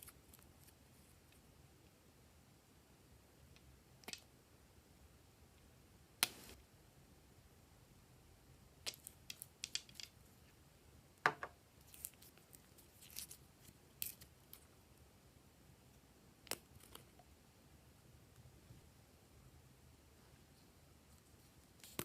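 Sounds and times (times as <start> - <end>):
small objects clicking and snipping: 3.6 - 4.3, 8.8 - 10.2, 11.8 - 14.7, 16.4 - 17.2, 21.8 - 22.0.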